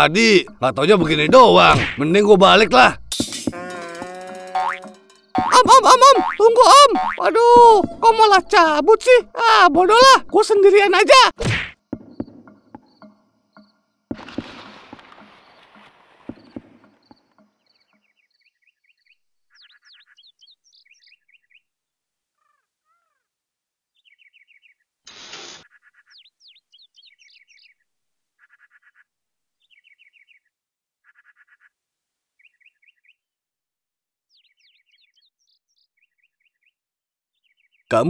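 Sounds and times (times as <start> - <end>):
small birds chirping and trilling: 15.3 - 31.8, 32.4 - 33.4, 34.3 - 38.0.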